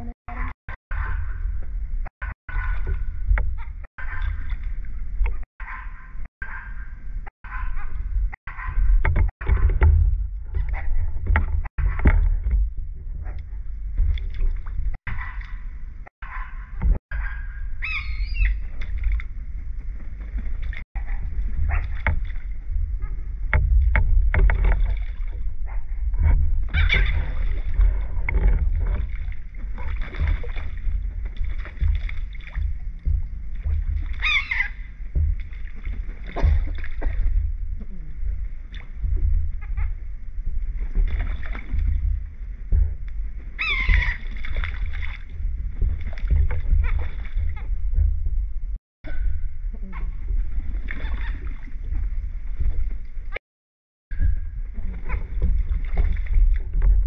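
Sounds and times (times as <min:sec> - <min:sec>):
steady low rumble: 0:00.0 - 0:53.4, 0:54.1 - 0:57.0
seagulls crying: 0:17.2 - 0:18.6, 0:34.2 - 0:34.8, 0:43.6 - 0:44.3.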